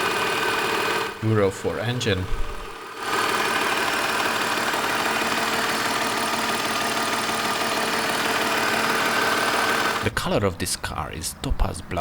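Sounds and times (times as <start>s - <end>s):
car engine idling: 2.7s - 10.1s.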